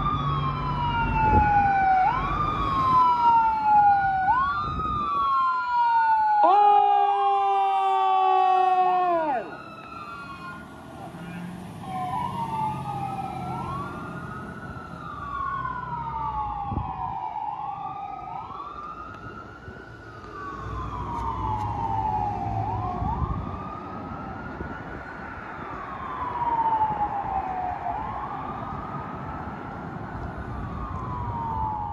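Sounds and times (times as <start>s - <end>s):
fire engine siren wailing: 0.0s - 31.9s
low vehicle rumble: 26.0s - 31.9s.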